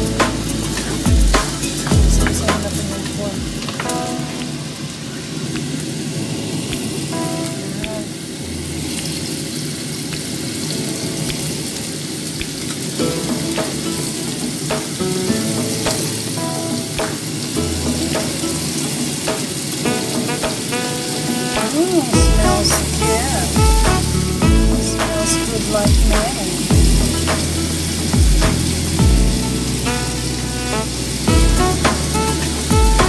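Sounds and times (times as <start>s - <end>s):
meat and onion sizzling in oil: 8.0s - 33.0s.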